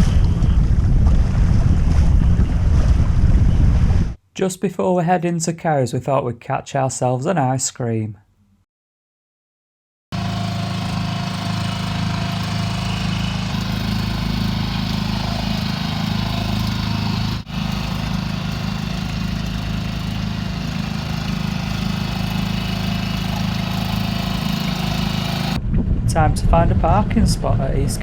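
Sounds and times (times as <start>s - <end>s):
boat engine running: 10.2s - 28.0s.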